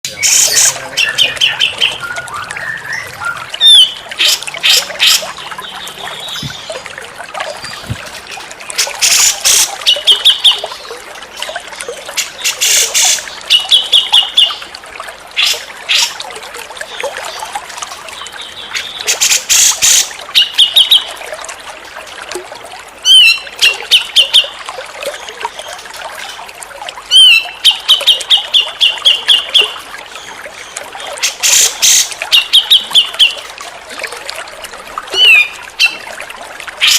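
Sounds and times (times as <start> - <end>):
bird calling: 0.1 - 6.9, 35.1 - 36.0.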